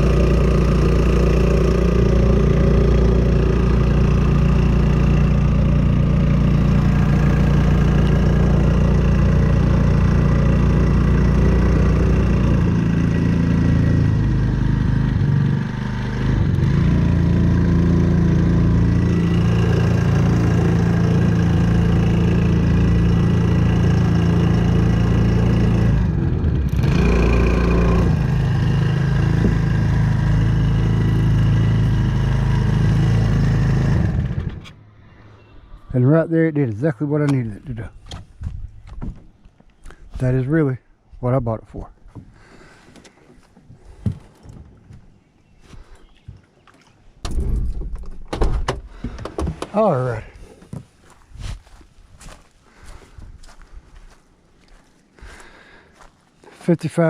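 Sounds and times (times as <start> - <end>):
outboard motor running: 0.0 - 34.8.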